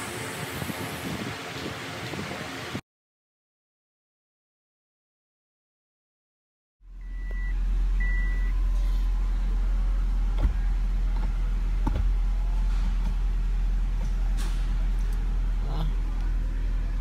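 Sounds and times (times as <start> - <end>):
car engine idling: 6.9 - 17.0.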